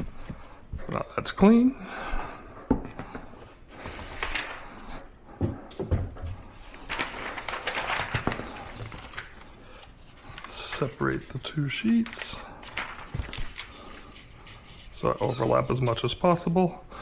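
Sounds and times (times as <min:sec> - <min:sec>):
paper towels rustling: 0:03.6 - 0:05.1, 0:06.3 - 0:16.7.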